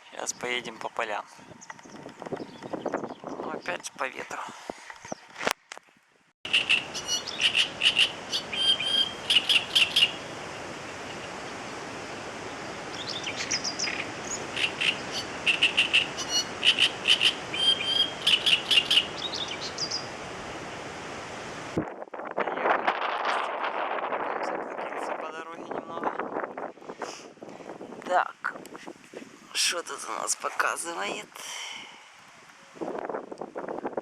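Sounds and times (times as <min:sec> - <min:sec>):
birds chirping: 0:00.0 - 0:05.4, 0:06.4 - 0:20.6
steady background hiss: 0:06.5 - 0:21.8.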